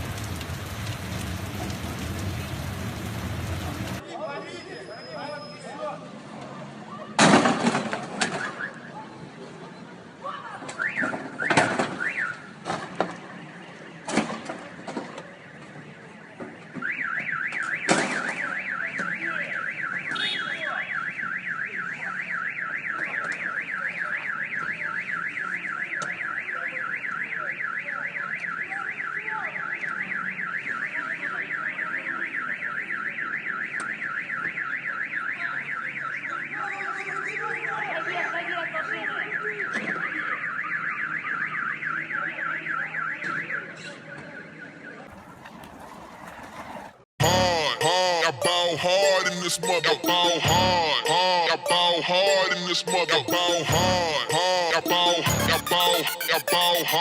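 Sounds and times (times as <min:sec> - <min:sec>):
car alarm siren warbling: 0:47.2 - 0:57.0.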